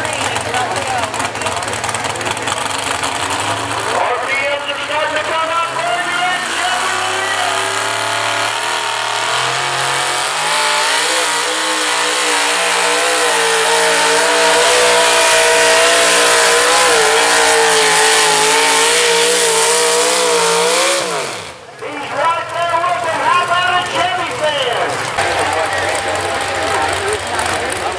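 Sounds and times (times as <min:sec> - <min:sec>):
vehicle engine at high revs: 0:00.0 - 0:27.9.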